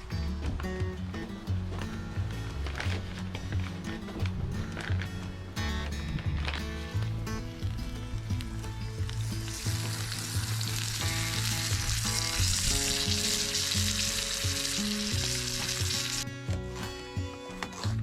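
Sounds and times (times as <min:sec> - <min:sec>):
music of held notes: 0:00.0 - 0:18.0
food sizzling in a pan: 0:09.0 - 0:16.2.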